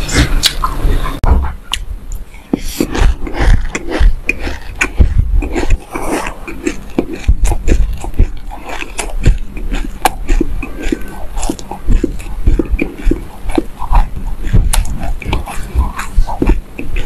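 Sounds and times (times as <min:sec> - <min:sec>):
chewing crunchy seeds: 0:02.4 - 0:17.0.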